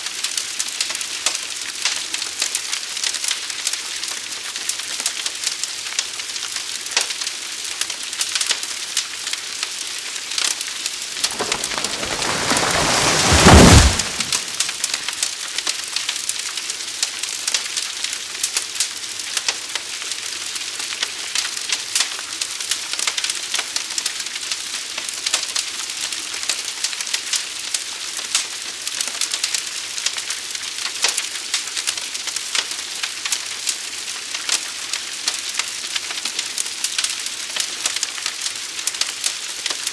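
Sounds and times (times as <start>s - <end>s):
fire crackling and popping: 11.2s - 14.8s.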